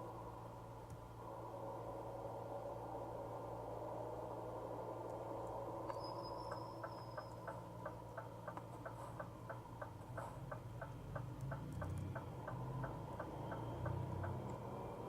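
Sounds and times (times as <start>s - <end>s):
diesel engine drone: 0.0s - 15.0s
turn signal ticking: 6.5s - 15.0s.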